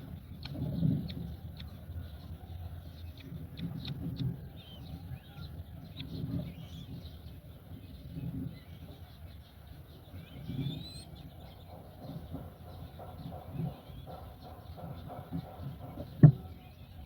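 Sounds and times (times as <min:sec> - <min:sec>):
low repeated bird calls: 0:00.0 - 0:17.0
faint high bird chirps: 0:08.1 - 0:17.0.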